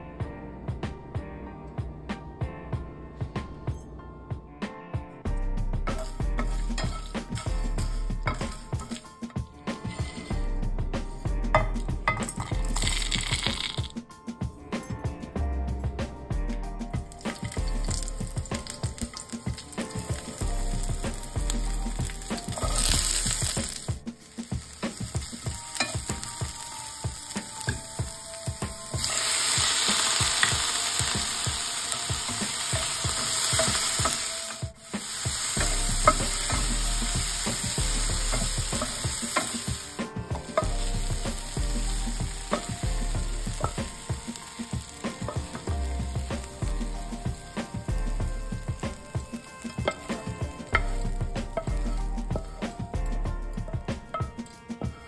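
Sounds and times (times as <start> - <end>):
vegetables sizzling in oil: 5.9 - 10.5, 11.5 - 13.9, 17.0 - 53.0
wooden spatula scraping pan: 9.7 - 10.4.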